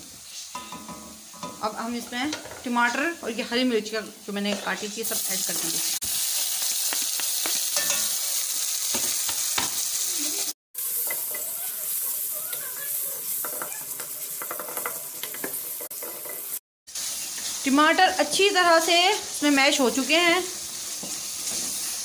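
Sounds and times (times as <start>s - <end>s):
vegetables sizzling in hot oil: 0.0s - 22.0s
utensils scraping a pan: 12.9s - 17.6s, 20.8s - 22.0s.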